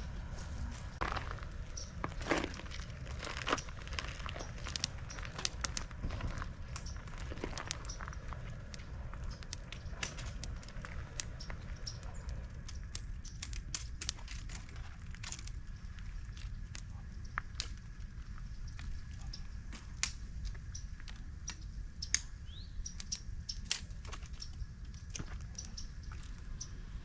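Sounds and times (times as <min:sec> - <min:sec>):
low rumble: 0:00.0 - 0:22.8
campfire crackling: 0:00.0 - 0:27.0.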